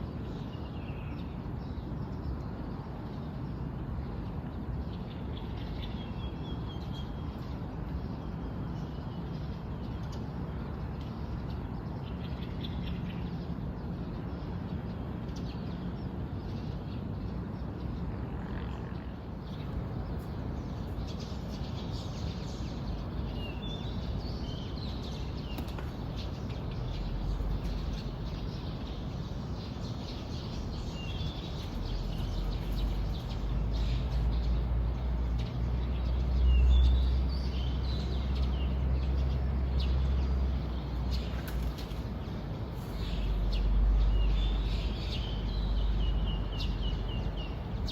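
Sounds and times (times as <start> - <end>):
wild birds chirping: 18.5 - 47.9.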